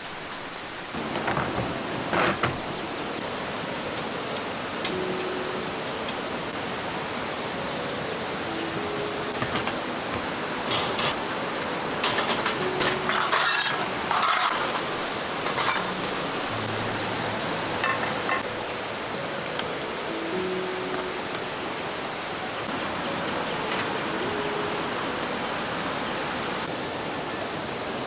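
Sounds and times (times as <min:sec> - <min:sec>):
rushing stream: 0:00.0 - 0:28.0
handling clatters and rustles: 0:09.3 - 0:11.4, 0:12.0 - 0:16.5, 0:17.8 - 0:18.5.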